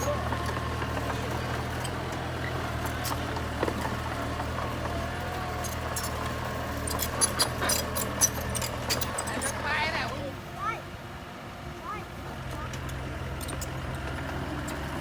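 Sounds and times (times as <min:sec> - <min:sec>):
bulldozer diesel engine droning: 0:00.0 - 0:15.0
sharp metallic clinks: 0:06.8 - 0:09.6.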